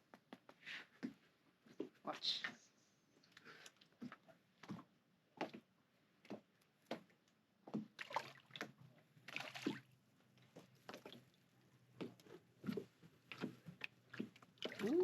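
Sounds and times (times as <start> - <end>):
fish splashing at water surface: 8.0 - 8.7, 9.3 - 9.9.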